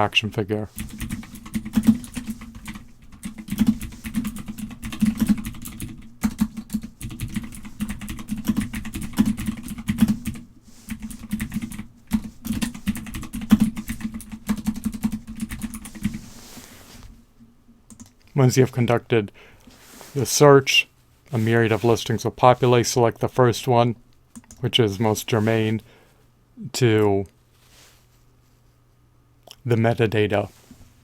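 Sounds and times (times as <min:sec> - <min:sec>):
computer keyboard typing: 0:00.8 - 0:16.2, 0:17.9 - 0:18.2, 0:24.3 - 0:24.6.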